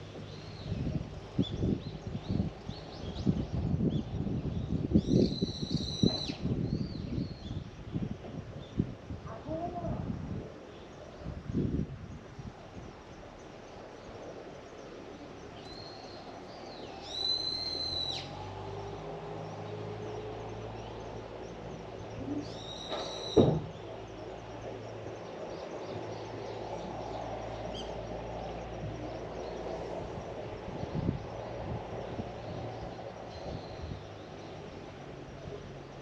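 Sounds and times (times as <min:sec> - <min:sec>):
bird shrill calls: 0:17.0 - 0:18.4, 0:22.4 - 0:23.5
short knock: 0:22.9 - 0:23.8.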